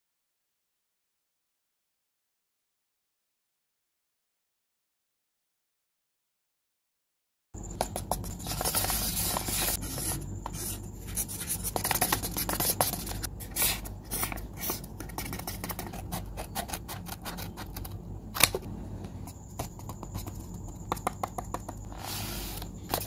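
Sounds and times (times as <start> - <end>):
paper rustling and crinkling: 8.2 - 9.9.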